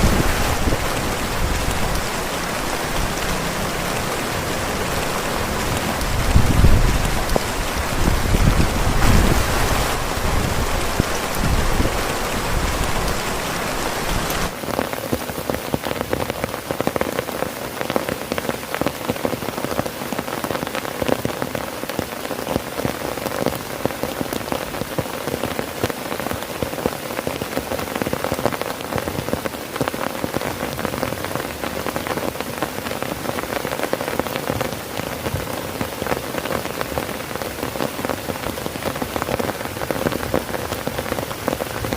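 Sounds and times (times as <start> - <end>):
low rumbling: 0.0 - 14.5
heavy rain drumming on a tent: 0.0 - 41.9.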